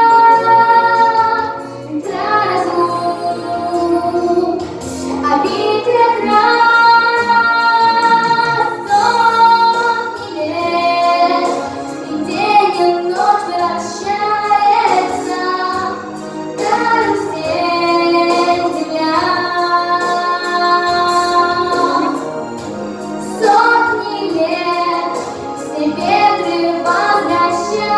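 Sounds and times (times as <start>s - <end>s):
instrumental accompaniment: 0.0s - 27.9s
high voice singing: 2.5s - 9.9s.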